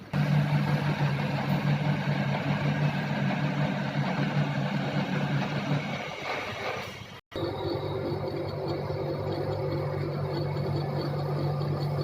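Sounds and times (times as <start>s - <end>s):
lathe machine hum: 0.0s - 12.0s
steady hum with higher tones: 7.4s - 12.0s.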